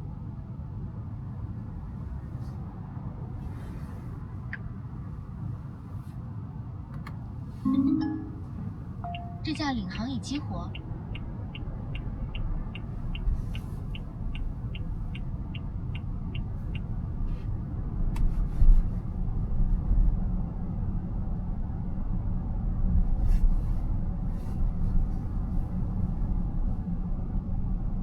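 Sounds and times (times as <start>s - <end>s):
road and tyre rumble: 0.0s - 7.6s, 8.5s - 28.0s
turn signal ticking: 9.0s - 17.4s.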